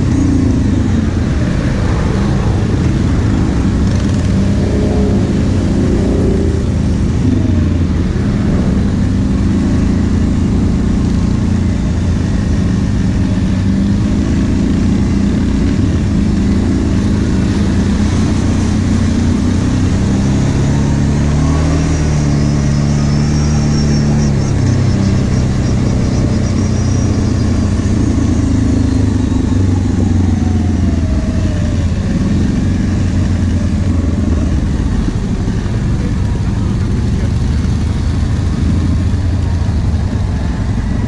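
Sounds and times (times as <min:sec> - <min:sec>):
rushing noise: 0:00.0 - 0:12.6
atv engine running: 0:00.0 - 0:41.0.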